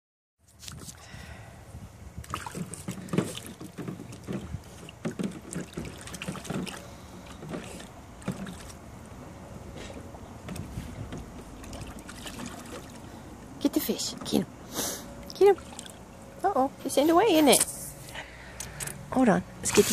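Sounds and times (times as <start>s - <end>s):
pool water splashing: 2.2s - 13.9s, 15.1s - 17.6s, 19.6s - 19.9s.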